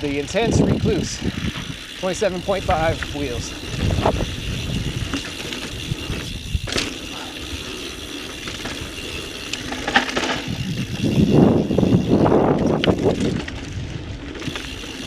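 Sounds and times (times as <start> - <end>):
bike clicks and rattles: 0.0 - 15.0
mountain bike tyre noise: 0.0 - 15.0.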